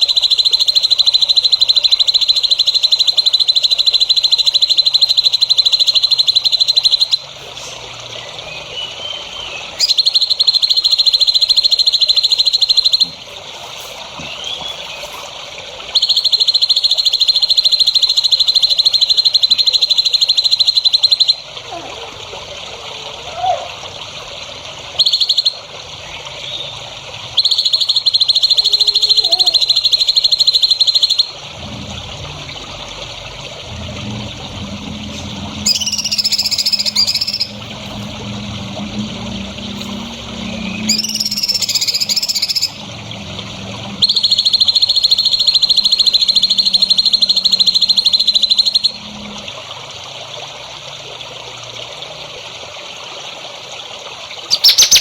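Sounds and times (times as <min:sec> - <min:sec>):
bird whistled song: 0:00.0 - 0:07.3, 0:08.4 - 0:13.2, 0:14.2 - 0:15.1, 0:15.9 - 0:21.4, 0:25.0 - 0:25.6, 0:27.4 - 0:31.4, 0:35.2 - 0:37.6, 0:39.8 - 0:42.8, 0:44.0 - 0:49.0, 0:54.5 - 0:55.0
songbird trilling: 0:00.0 - 0:07.8, 0:08.5 - 0:15.3, 0:15.9 - 0:21.4, 0:25.0 - 0:25.6, 0:27.4 - 0:31.4, 0:35.2 - 0:37.9, 0:39.8 - 0:42.8, 0:44.0 - 0:49.0, 0:54.5 - 0:55.0
low steady drone: 0:31.3 - 0:51.6.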